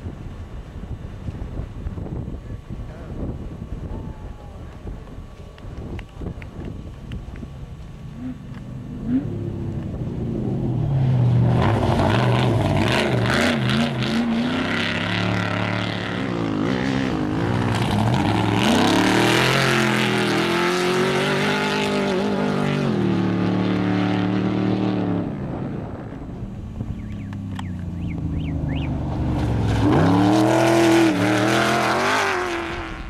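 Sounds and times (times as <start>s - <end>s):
race vehicle engine revving high: 8.0s - 26.2s, 26.8s - 33.0s.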